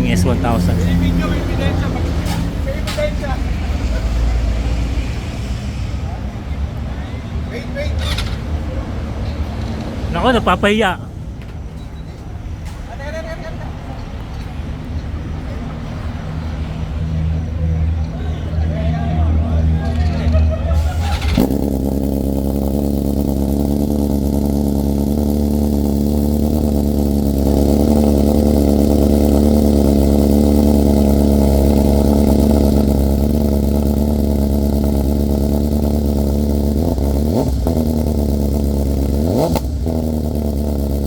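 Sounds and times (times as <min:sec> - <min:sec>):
motorcycle engine idling: 0:00.0 - 0:04.0, 0:16.4 - 0:41.0
motorcycle throttle blips: 0:17.9 - 0:41.0.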